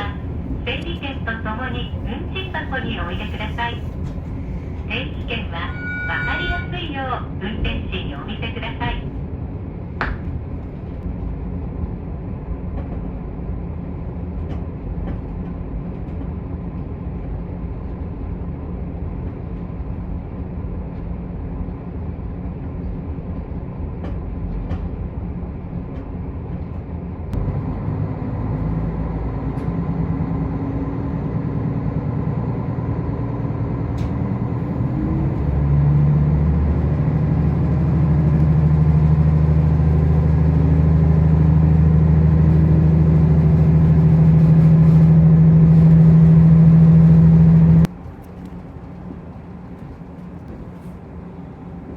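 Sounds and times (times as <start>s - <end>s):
diesel engine drone: 0.0s - 12.5s, 27.3s - 51.9s
railcar rumble: 0.0s - 51.9s.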